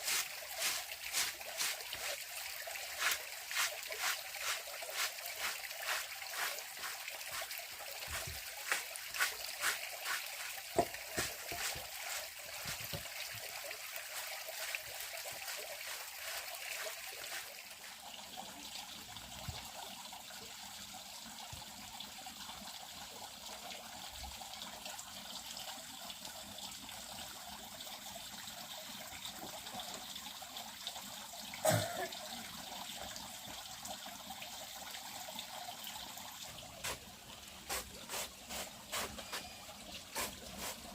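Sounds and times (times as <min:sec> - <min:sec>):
water trickling: 0:00.0 - 0:40.9.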